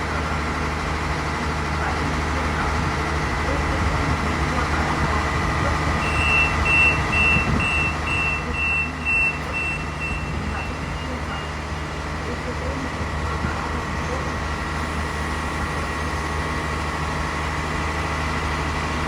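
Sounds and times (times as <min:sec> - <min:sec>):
train diesel engine humming: 0:00.0 - 0:19.0.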